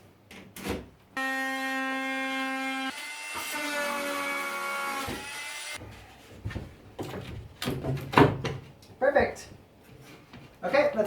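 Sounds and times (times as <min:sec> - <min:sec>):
power saw cutting wood: 0:01.2 - 0:05.8.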